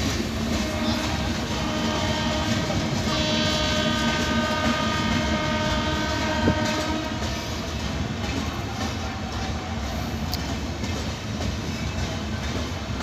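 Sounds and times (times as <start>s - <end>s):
train rumbling on track: 0.0s - 13.0s
train horn: 0.5s - 7.4s.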